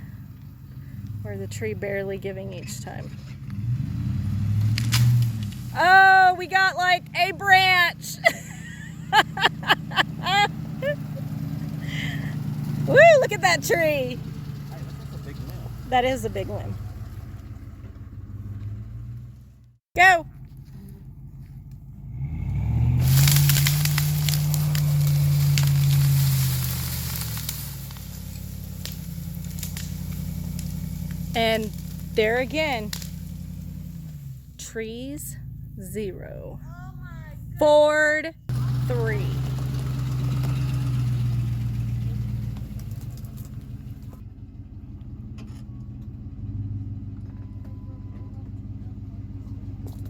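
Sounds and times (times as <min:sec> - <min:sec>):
pickup engine revving: 0:00.0 - 0:44.5
branches cracking and snapping: 0:03.5 - 0:05.8, 0:22.6 - 0:34.2, 0:39.4 - 0:41.4, 0:42.1 - 0:44.1.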